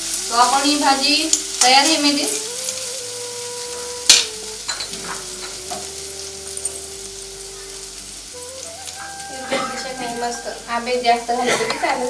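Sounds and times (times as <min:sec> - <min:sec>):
food sizzling in a wok: 0:00.0 - 0:12.0
utensil knocking on a wok: 0:04.1 - 0:05.9.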